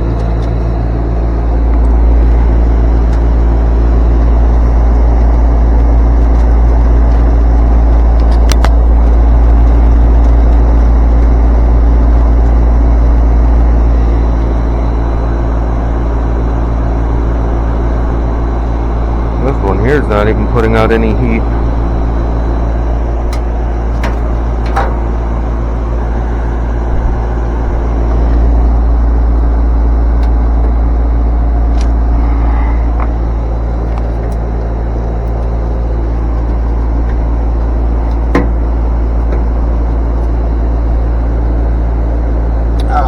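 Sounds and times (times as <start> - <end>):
low mechanical hum: 0.0 - 43.0.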